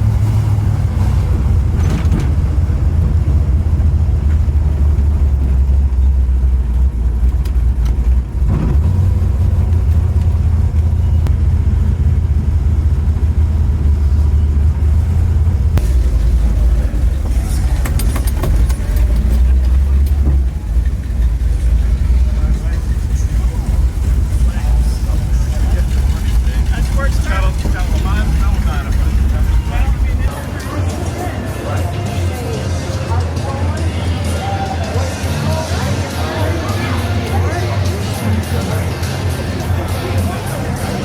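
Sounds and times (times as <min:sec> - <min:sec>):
car engine and exhaust rumbling: 0:00.0 - 0:41.0.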